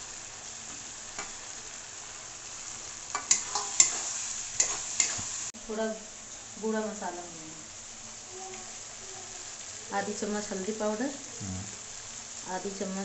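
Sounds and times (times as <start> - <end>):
masala sizzling in a pan: 0.0 - 13.0
steel spatula scraping pan: 3.2 - 5.2.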